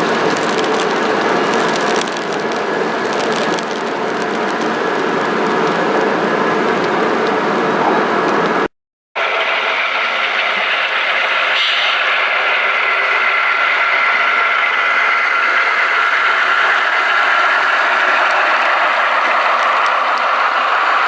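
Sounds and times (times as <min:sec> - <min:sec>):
wheels on track: 0:00.0 - 0:21.0
model train motor whirring: 0:09.3 - 0:21.0.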